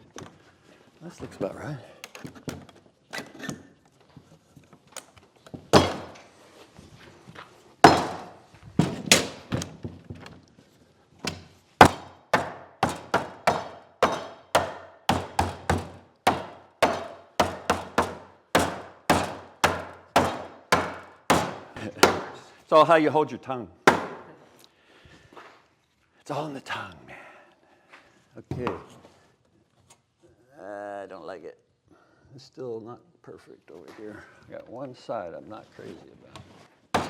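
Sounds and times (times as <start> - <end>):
hammering on wood: 5.7 - 6.3, 7.8 - 9.9, 11.2 - 22.5, 23.9 - 24.4.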